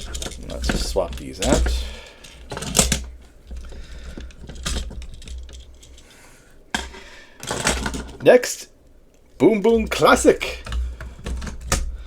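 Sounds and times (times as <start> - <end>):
plastic toy parts clicking: 0.0 - 6.0.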